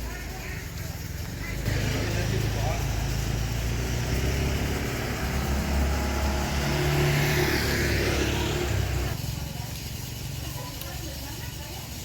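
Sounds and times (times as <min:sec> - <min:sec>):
motor engine running: 0:00.1 - 0:10.7.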